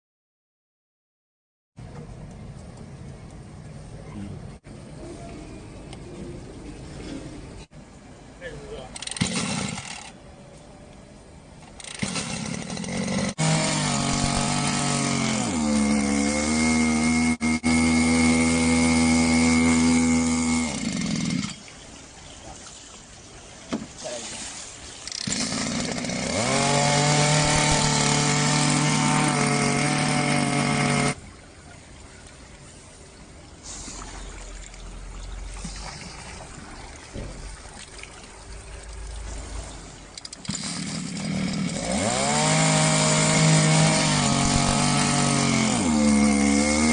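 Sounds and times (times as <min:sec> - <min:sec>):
water pump engine running: 0:12.0 - 0:21.6, 0:25.2 - 0:31.2.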